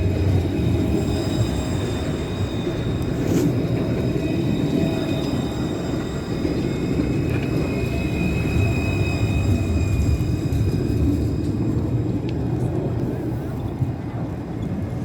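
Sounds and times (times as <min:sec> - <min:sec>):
electric tram rumble: 0:00.0 - 0:15.0.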